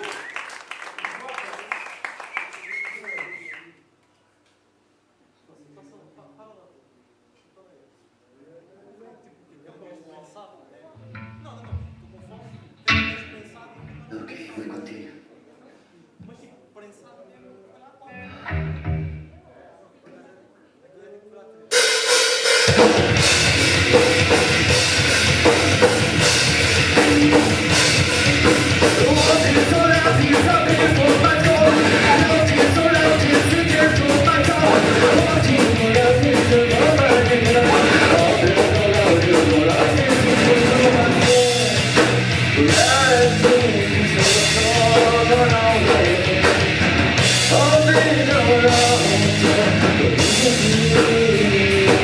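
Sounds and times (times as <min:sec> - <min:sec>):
rock band playing: 0:11.0 - 0:12.2, 0:12.8 - 0:14.1, 0:18.1 - 0:19.3, 0:21.7 - 0:52.0
drum kit pounding: 0:21.8 - 0:52.0
person singing: 0:26.8 - 0:52.0.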